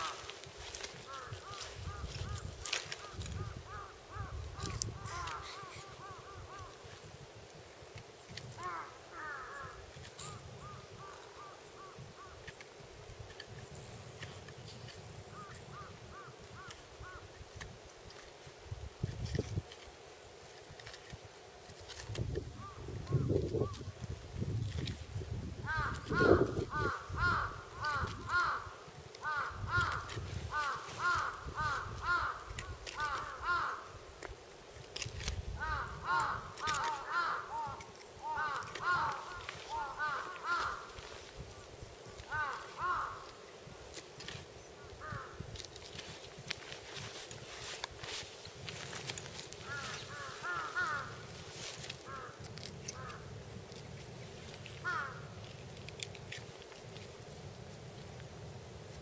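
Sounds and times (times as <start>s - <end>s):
crows cawing: 0.0s - 6.9s, 8.6s - 12.5s, 15.3s - 17.3s, 25.6s - 34.1s, 35.5s - 41.5s, 42.1s - 43.5s, 44.8s - 45.5s, 49.6s - 53.3s, 54.7s - 55.4s.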